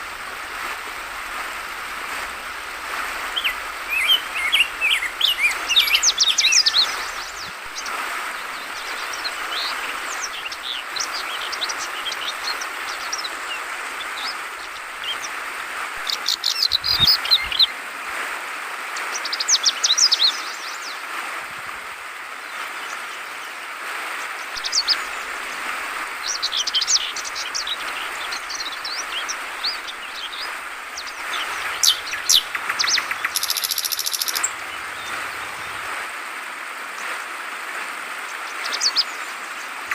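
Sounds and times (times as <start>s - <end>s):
running water trickling: 0.0s - 18.2s, 21.4s - 39.9s
bird chirping in bubbly bursts: 3.3s - 15.4s, 24.5s - 35.9s.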